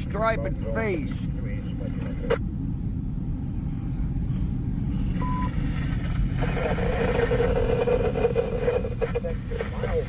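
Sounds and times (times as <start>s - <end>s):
engine running: 0.0s - 10.0s
wind rumble: 0.0s - 10.0s
short electronic beep: 5.2s - 5.6s.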